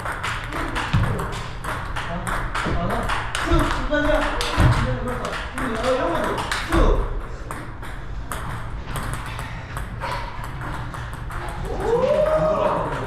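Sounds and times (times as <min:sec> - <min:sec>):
table tennis ball clicking: 0:00.0 - 0:11.9
person speaking: 0:02.2 - 0:07.2.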